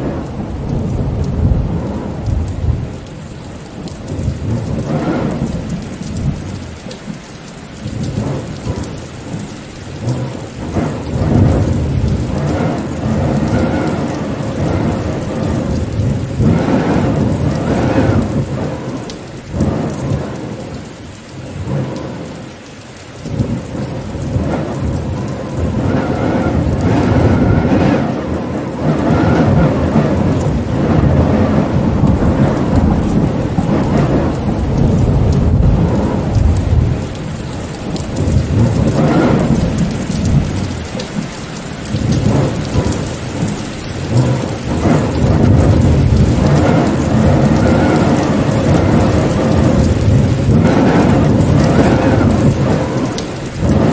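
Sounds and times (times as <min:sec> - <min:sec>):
heavy rain: 0:00.0 - 0:53.9
deep rumble: 0:23.3 - 0:41.0.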